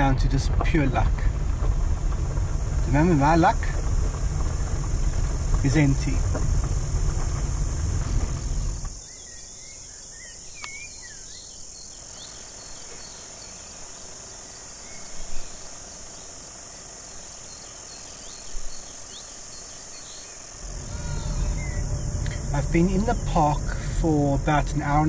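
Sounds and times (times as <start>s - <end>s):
low bumps: 0.0s - 9.0s, 20.6s - 25.0s
high-pitched insect chorus: 0.0s - 25.0s.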